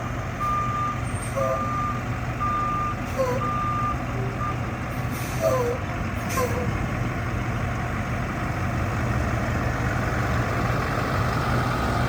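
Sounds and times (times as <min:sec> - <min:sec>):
truck reversing alarm beeping: 0:00.0 - 0:06.8
diesel engine humming: 0:00.0 - 0:12.0.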